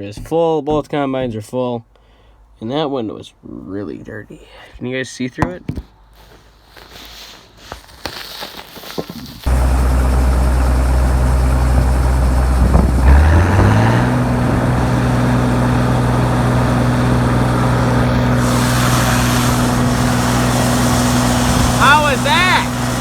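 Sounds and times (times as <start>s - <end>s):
tractor engine running: 9.5s - 23.0s
rushing hiss: 18.0s - 23.0s.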